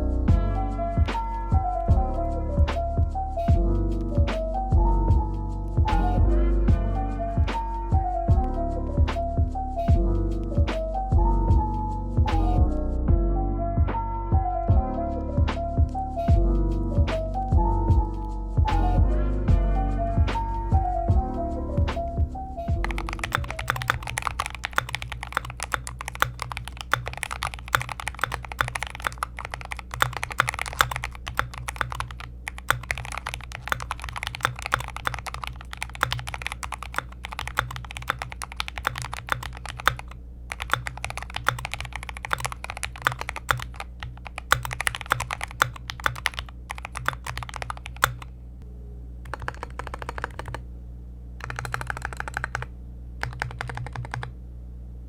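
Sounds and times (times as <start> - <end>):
mechanical keyboard typing: 22.8 - 48.3, 49.2 - 50.6, 51.4 - 54.3.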